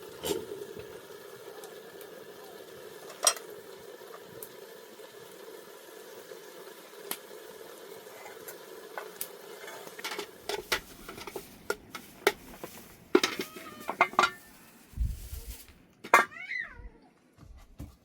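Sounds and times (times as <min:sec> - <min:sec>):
metal utensils clinking on pot: 0:03.0 - 0:03.5, 0:09.6 - 0:14.5.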